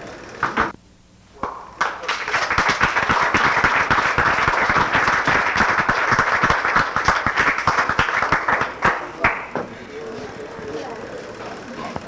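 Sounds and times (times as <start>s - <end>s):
group of people clapping: 0.4s - 0.8s, 1.4s - 9.6s.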